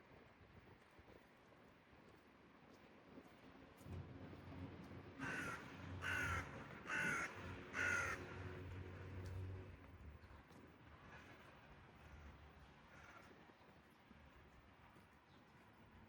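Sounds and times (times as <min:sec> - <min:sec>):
crow cawing: 0:05.2 - 0:08.4.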